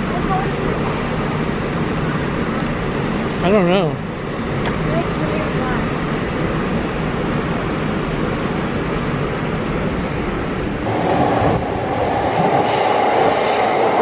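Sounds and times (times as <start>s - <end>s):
train car rumbling: 0.0s - 14.0s
train screech: 11.9s - 14.0s
high-pitched wheel squeal: 12.0s - 13.7s.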